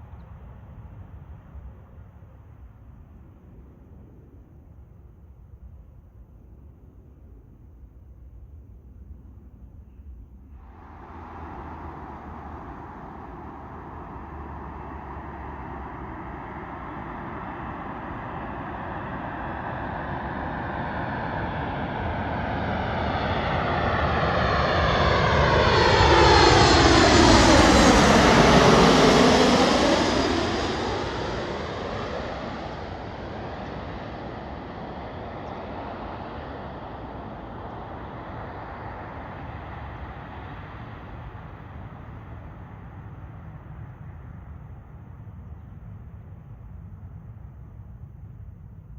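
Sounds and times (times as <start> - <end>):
jet airliner passing overhead: 10.5 - 48.9.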